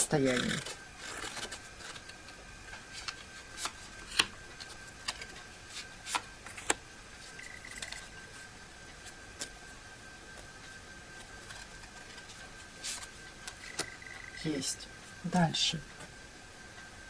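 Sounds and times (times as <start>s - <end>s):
cards clicking and tapping: 3.0s - 5.4s, 12.9s - 14.0s.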